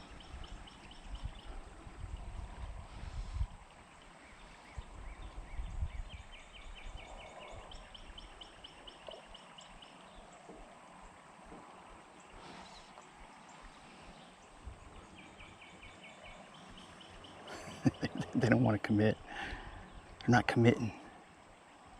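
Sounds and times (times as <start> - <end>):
wind rumble on microphone: 0.0 - 11.7, 13.1 - 18.4
outdoor background noise: 0.0 - 21.9
songbird trilling: 12.6 - 20.9.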